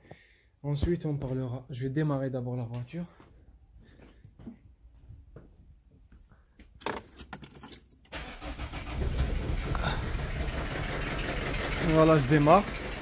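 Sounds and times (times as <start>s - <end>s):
starter motor cranking: 8.1s - 13.0s
diesel engine idling roughly: 8.2s - 13.0s.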